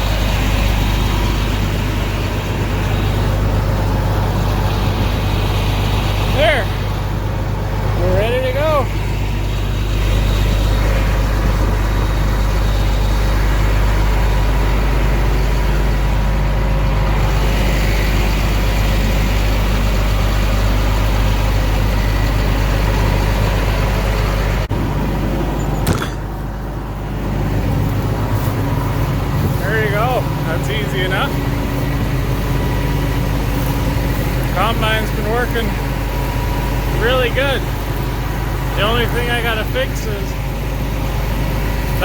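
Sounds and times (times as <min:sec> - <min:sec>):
combine harvester engine running: 0:00.0 - 0:42.0
sharp click: 0:25.8 - 0:26.2.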